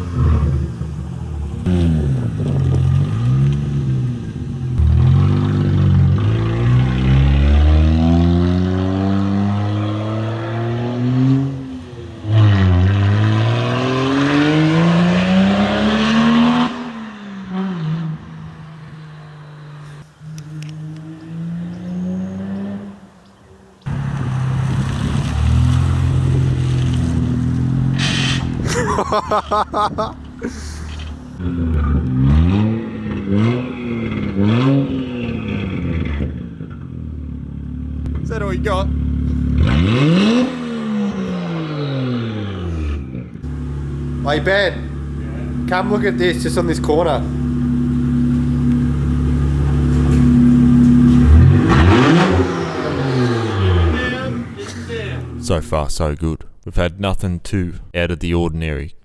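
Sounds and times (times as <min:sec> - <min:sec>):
car engine accelerating: 0:00.0 - 0:55.6
car engine running: 0:43.4 - 0:55.5.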